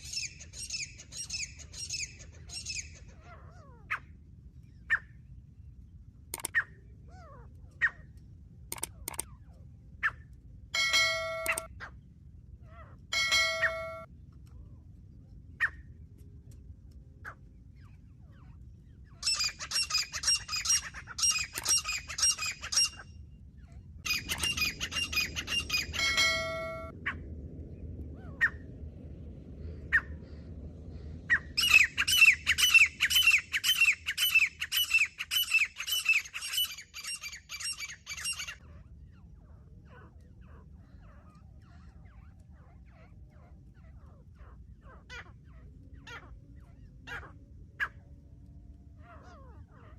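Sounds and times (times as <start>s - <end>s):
partridge calling: 6.4s - 6.6s, 10.8s - 11.7s, 13.1s - 14.1s, 19.2s - 23.0s, 24.1s - 26.9s, 31.3s - 38.6s
short ringing chime: 10.8s - 11.7s, 13.2s - 14.1s.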